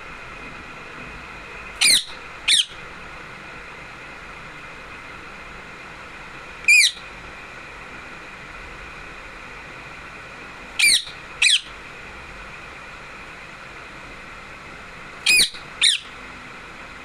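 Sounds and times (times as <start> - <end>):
parrot calling: 1.8 - 2.8, 6.7 - 7.0, 10.8 - 11.8, 15.2 - 16.2.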